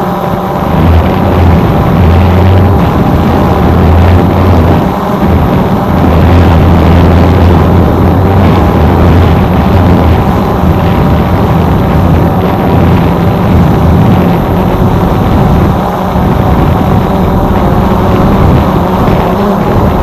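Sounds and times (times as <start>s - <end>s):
drone propellers whirring: 0.0s - 20.0s.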